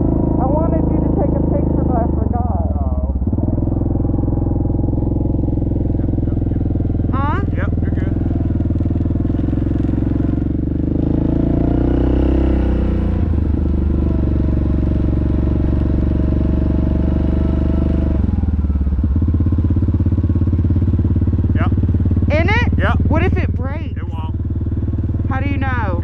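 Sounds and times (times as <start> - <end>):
quad bike engine running: 0.0 - 26.0.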